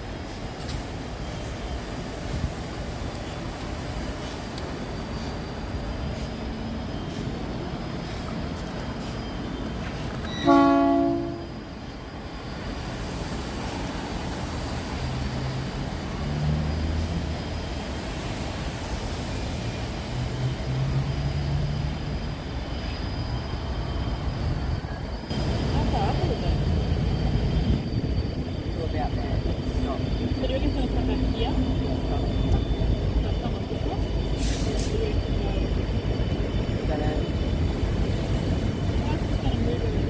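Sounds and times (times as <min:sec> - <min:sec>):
low rumble of railway machinery: 0:00.0 - 0:40.0
train whistle blast: 0:10.3 - 0:11.5.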